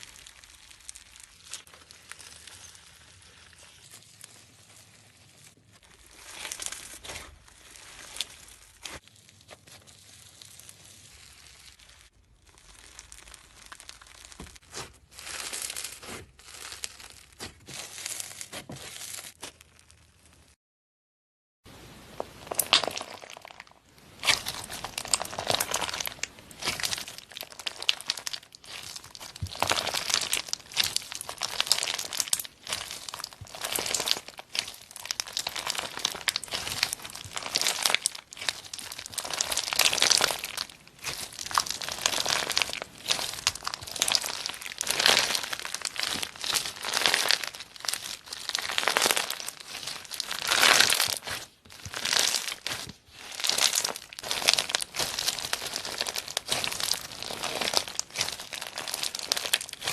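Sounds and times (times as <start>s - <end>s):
slime squeezed crackling: 0.0s - 20.5s, 22.0s - 59.9s.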